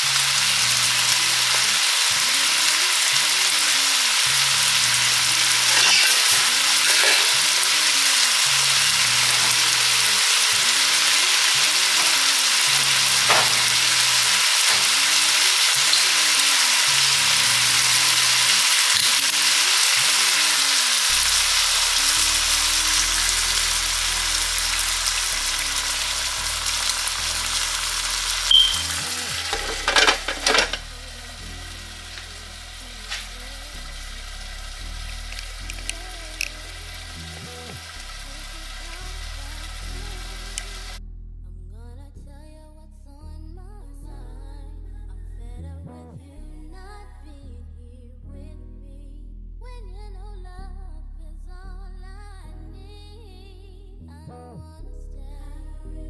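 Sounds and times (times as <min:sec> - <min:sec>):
food sizzling in a frying pan: 0:00.0 - 0:41.0
soft background music: 0:00.0 - 0:56.0.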